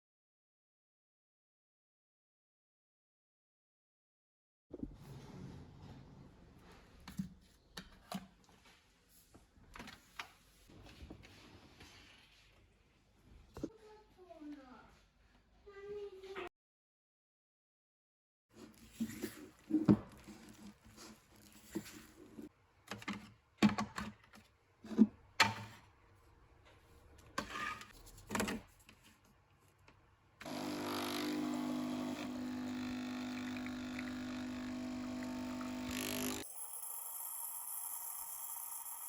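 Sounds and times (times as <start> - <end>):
motor humming: 30.5 - 39.0.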